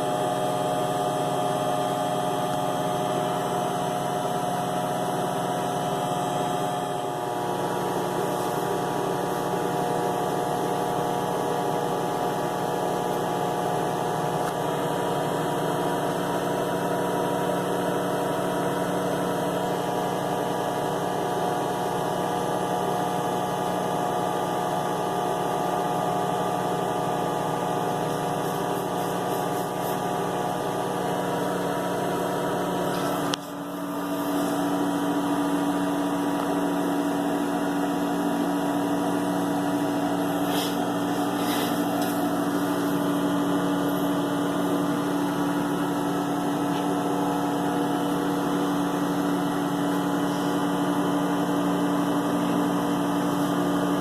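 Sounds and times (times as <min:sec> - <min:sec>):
motor humming: 0:27.1 - 0:52.7.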